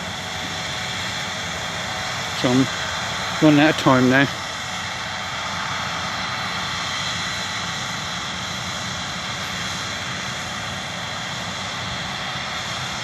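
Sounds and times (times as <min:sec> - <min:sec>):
combine harvester droning: 0:00.0 - 0:13.0.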